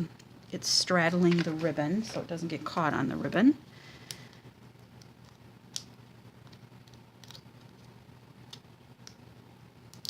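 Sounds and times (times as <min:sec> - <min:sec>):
low room hum: 0:00.0 - 0:10.0
paper handling clicks: 0:05.0 - 0:09.2.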